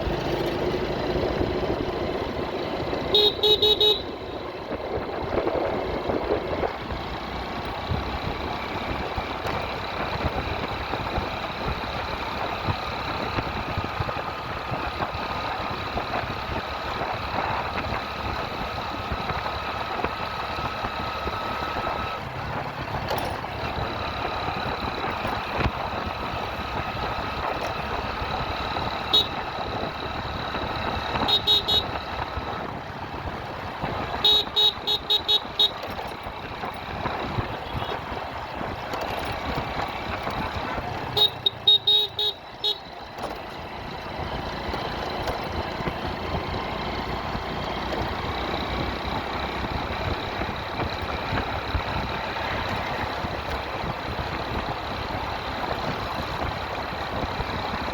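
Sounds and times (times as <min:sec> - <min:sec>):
road noise: 0:00.0 - 0:57.9
vehicle horns honking: 0:03.0 - 0:04.5, 0:29.0 - 0:29.6, 0:31.1 - 0:32.1, 0:34.1 - 0:36.0, 0:37.5 - 0:38.1, 0:41.1 - 0:42.9
short horn beeps: 0:03.1 - 0:04.4, 0:29.1 - 0:29.5, 0:31.2 - 0:32.0, 0:34.2 - 0:35.9, 0:41.2 - 0:42.9.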